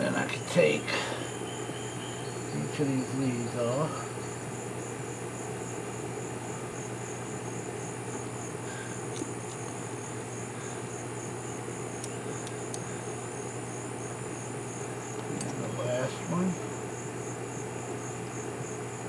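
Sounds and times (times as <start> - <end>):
insects chirping: 0.0 - 19.0
faint light clicks: 9.1 - 9.8, 12.0 - 12.9.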